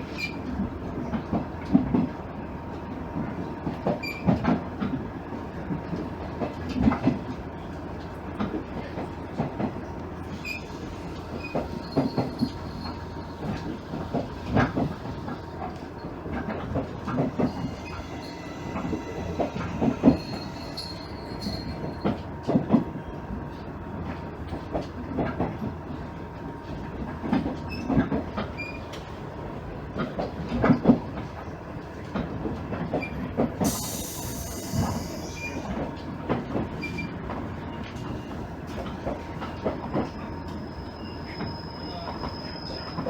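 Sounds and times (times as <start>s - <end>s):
railcar running: 0.0s - 43.0s
thin high squeal: 17.1s - 22.0s, 33.7s - 35.7s.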